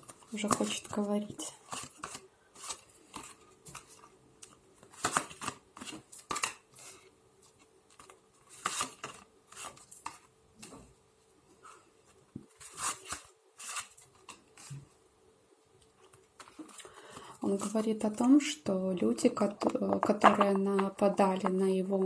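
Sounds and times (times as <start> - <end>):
cards shuffled and slapped: 4.8 - 6.6.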